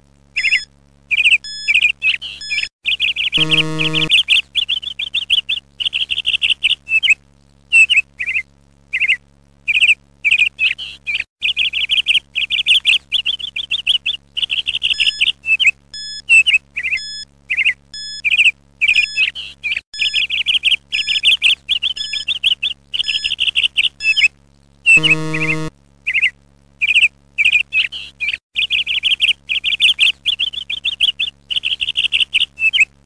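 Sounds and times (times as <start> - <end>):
small birds chirping: 0.4 - 15.8, 16.4 - 24.3, 24.9 - 32.9
short buzzer tone: 3.4 - 4.1, 24.9 - 25.7.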